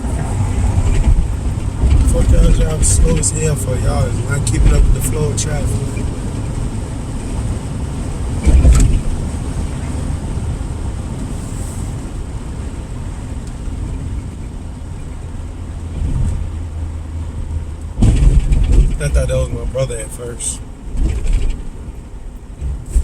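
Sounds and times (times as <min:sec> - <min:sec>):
car engine and tyres rumbling: 0:00.0 - 0:23.0
thump in car cabin: 0:08.4 - 0:09.1, 0:18.0 - 0:19.1, 0:22.6 - 0:23.0.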